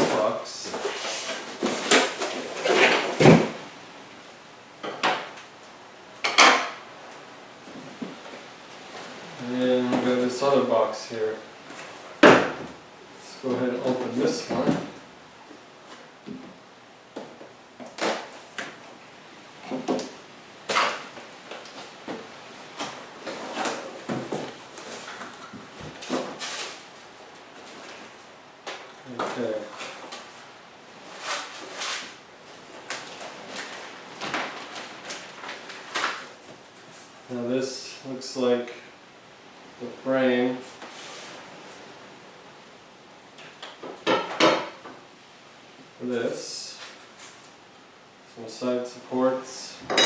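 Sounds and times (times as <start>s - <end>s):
cardboard boxes scraping and knocking: 0.0s - 3.6s.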